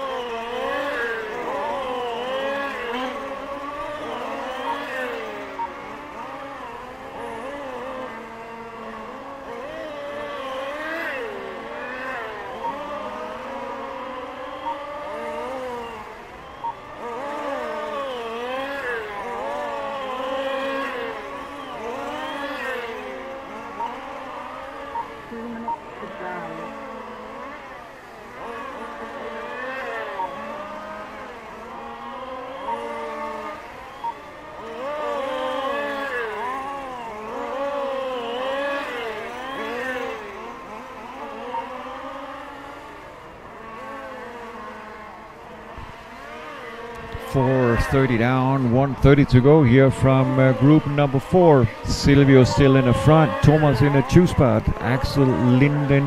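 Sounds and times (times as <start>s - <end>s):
model car motors whining: 0.0s - 56.0s
short electronic beeps: 11.8s - 18.1s, 21.4s - 26.8s, 29.8s - 31.0s, 32.6s - 35.3s
short electronic beep: 16.4s - 16.9s, 33.9s - 34.2s.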